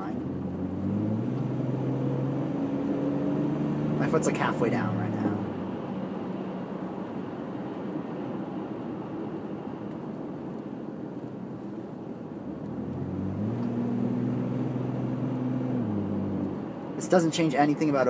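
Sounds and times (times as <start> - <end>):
car engine humming: 0.0 - 18.0
tyre and road noise: 0.0 - 18.0.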